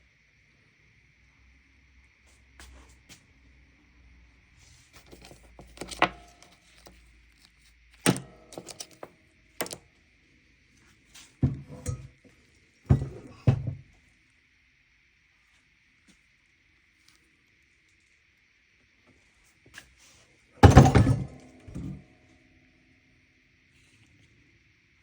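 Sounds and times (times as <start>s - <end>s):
hard objects knocking and clunking: 8.1s - 9.8s, 11.4s - 12.2s, 12.9s - 13.9s, 20.6s - 22.0s.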